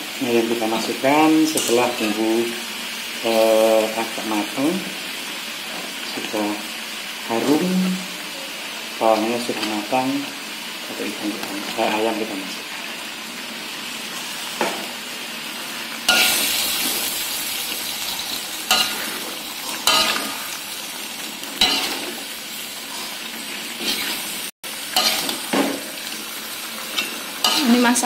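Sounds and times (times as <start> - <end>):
chicken sizzling in a wok: 0.0 - 28.0
metal spatula scraping a pan: 16.1 - 17.1, 17.8 - 20.6, 21.6 - 23.2, 23.8 - 24.3, 24.9 - 26.1, 26.8 - 28.0.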